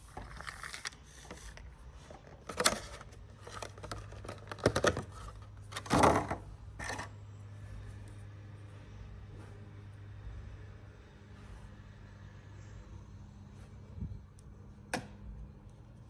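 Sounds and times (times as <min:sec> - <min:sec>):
faint low hum: 0:00.0 - 0:16.0
packaging clicks and rustles: 0:00.1 - 0:07.1.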